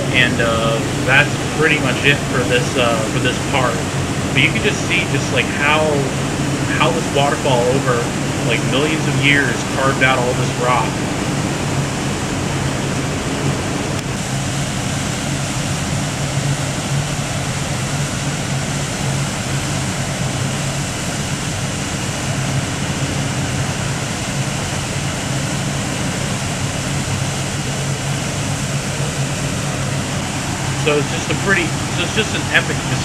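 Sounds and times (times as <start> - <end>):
waterfall rushing water: 0.0 - 6.1
low water rumble: 0.0 - 33.0.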